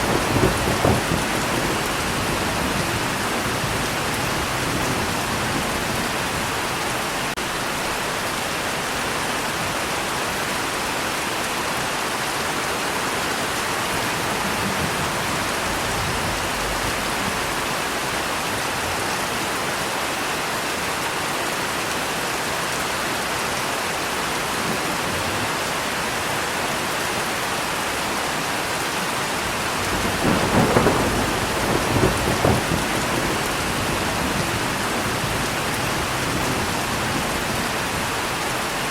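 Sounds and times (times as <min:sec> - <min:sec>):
thunder rumbling: 0:00.0 - 0:08.0, 0:13.8 - 0:19.0, 0:29.4 - 0:38.8
rain falling: 0:00.0 - 0:38.9.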